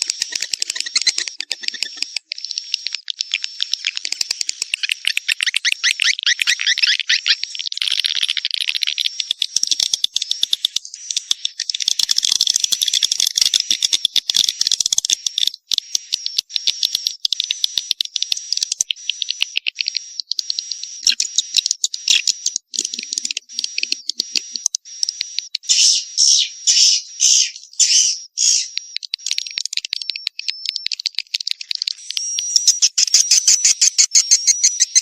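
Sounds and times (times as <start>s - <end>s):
swiftlets chattering clicks: 0.0s - 6.4s, 28.7s - 32.4s
high steady twittering: 15.5s - 35.0s.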